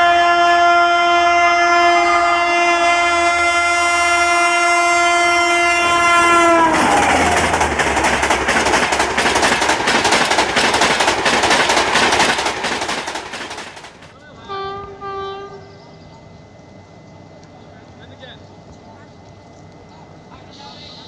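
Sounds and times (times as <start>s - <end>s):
locomotive horn: 0.0s - 7.6s, 14.4s - 15.8s
train wheels clattering: 5.7s - 14.3s.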